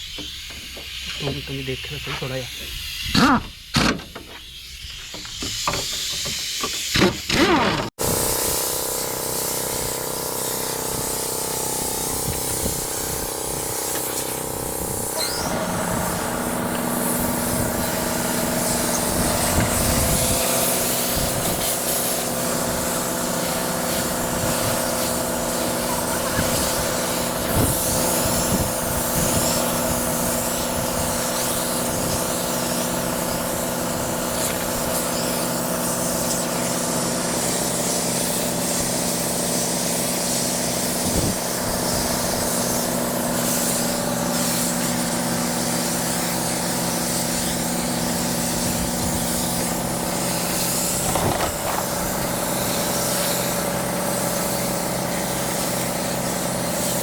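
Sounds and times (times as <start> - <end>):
hiss: 0.0 - 57.0
truck diesel engine running: 10.6 - 21.4.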